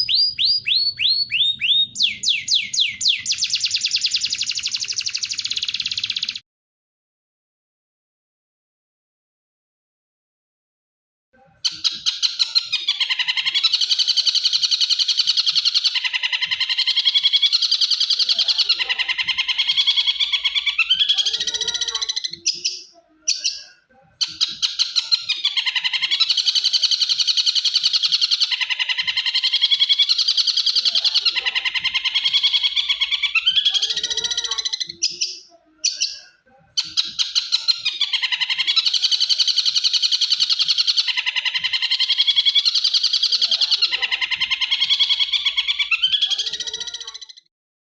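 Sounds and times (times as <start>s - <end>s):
bird singing fast trilled song: 0.0s - 6.4s, 24.2s - 41.3s.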